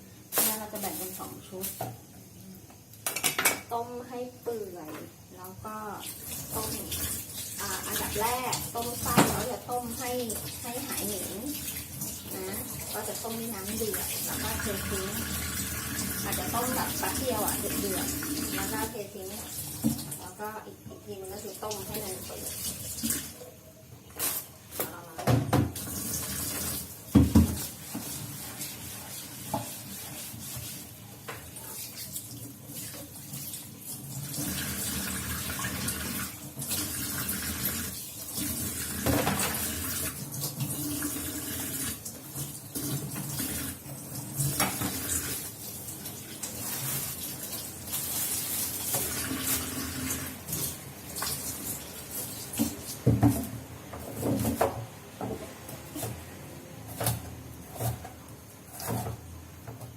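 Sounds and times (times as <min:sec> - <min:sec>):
pots and utensils clattering: 0:03.0 - 0:03.7, 0:39.0 - 0:39.8
tap water running into sink: 0:04.5 - 0:20.4, 0:21.2 - 0:23.5, 0:24.2 - 0:56.2.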